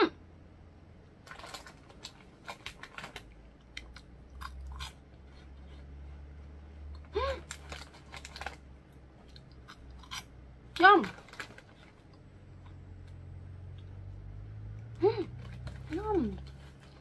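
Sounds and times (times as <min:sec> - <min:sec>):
crunchy snack chewing: 0:01.2 - 0:05.9, 0:07.0 - 0:10.4.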